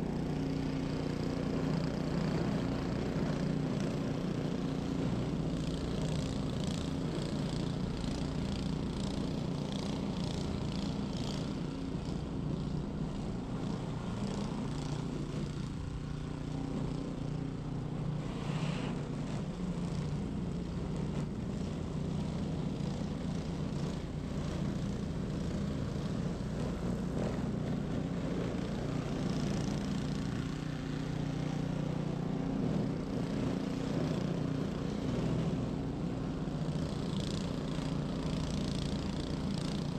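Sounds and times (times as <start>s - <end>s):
snow blower engine running: 0.0s - 39.9s.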